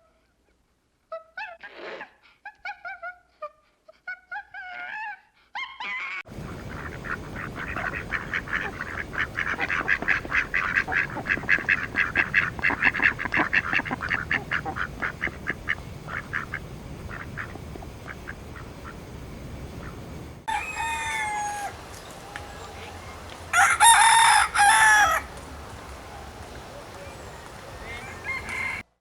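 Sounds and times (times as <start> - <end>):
low background rumble: 6.3 - 28.8.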